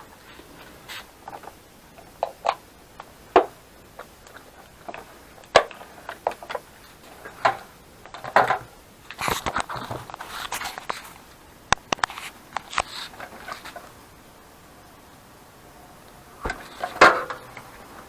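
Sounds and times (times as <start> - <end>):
rustling and crackling: 0.0 - 14.1, 16.4 - 18.0
sharp clicks and knocks: 16.4 - 17.7.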